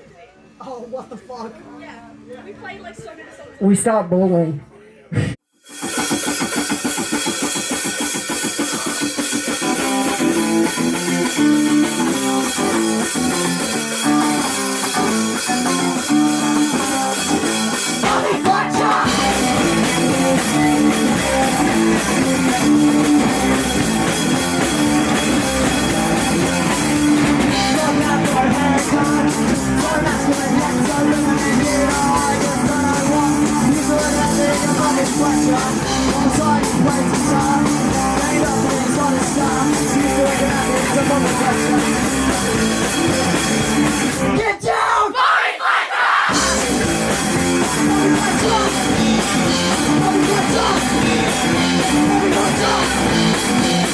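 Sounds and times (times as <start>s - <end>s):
live rock band playing: 5.6s - 44.5s, 46.3s - 53.9s.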